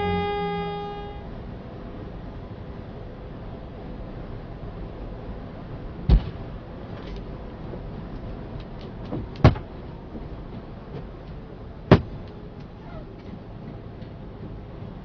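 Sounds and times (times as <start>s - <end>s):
truck engine rumble: 0.0s - 15.0s
sharp knocks: 9.1s - 9.7s, 11.9s - 12.2s.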